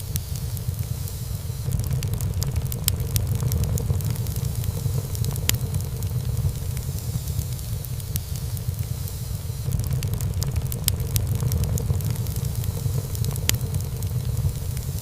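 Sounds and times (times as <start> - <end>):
wood fire crackling in fireplace: 0.0 - 15.0.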